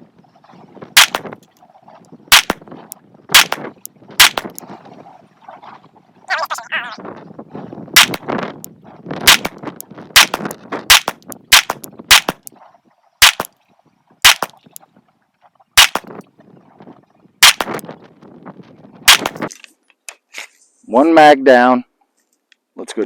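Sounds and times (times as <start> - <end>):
wind noise: 0.0 - 15.1, 15.8 - 19.6
pistol shots: 1.0 - 1.3, 2.3 - 2.6, 3.3 - 4.5, 8.0 - 8.3, 9.3 - 9.6, 10.2 - 12.4, 13.2 - 13.5, 14.2 - 14.6, 15.8 - 16.1, 17.4 - 17.8, 19.1 - 19.4.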